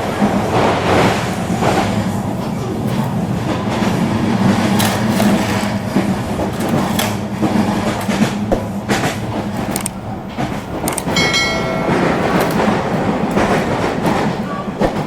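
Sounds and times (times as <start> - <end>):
toy train on plastic track: 0.0 - 15.0
high-pitched tone: 11.2 - 14.3.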